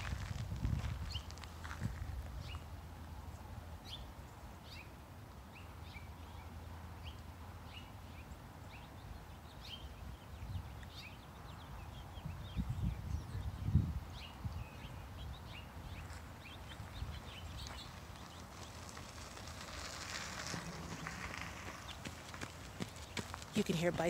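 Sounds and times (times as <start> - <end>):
low outdoor rumble: 0.0 - 7.8, 15.2 - 24.0
wild birds chirping: 0.0 - 24.0.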